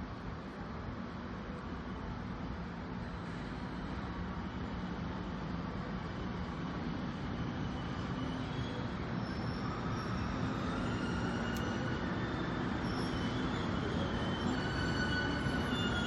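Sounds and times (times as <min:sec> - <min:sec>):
faint wheel squeal: 0:07.0 - 0:16.0.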